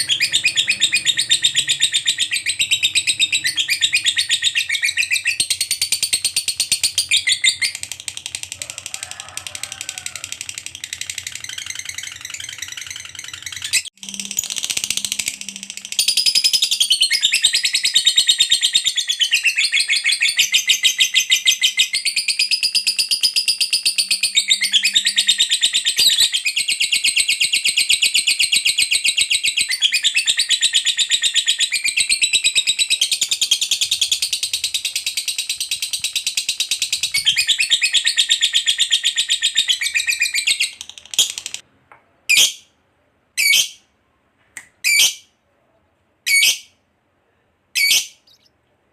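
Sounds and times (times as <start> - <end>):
lovebird rattling chatter: 5.9 - 16.6, 40.6 - 41.6.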